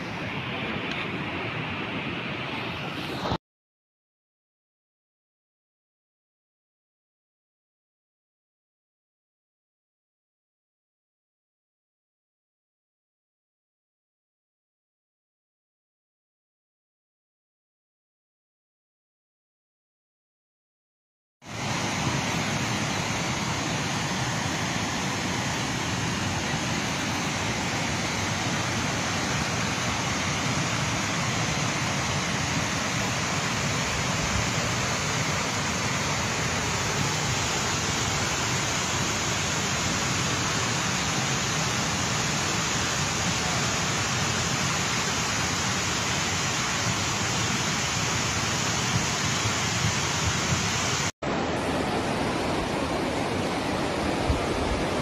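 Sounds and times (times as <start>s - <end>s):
river rushing: 0.0s - 3.4s, 21.4s - 55.0s.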